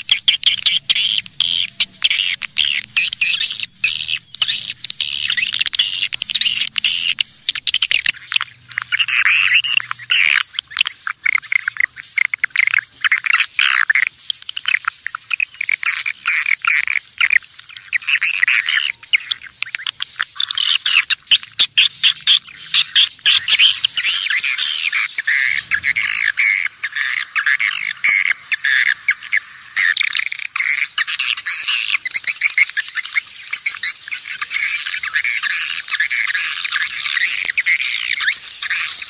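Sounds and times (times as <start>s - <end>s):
swiftlets chirping and twittering: 0.0s - 39.0s.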